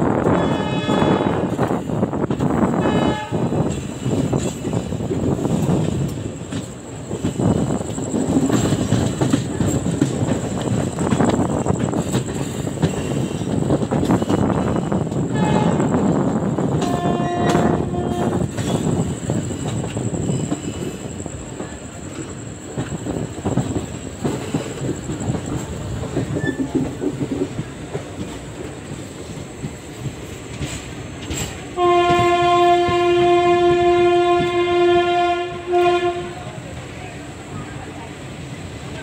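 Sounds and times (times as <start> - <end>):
train wheels clattering on rails: 0.0 - 39.0
locomotive horn blast: 0.2 - 1.5, 2.8 - 3.6, 15.3 - 15.9, 16.8 - 18.4, 31.8 - 36.6.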